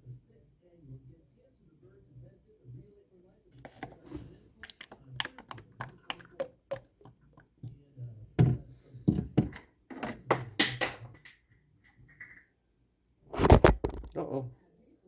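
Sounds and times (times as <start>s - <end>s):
hands tapping and clicking objects: 3.7s - 7.8s.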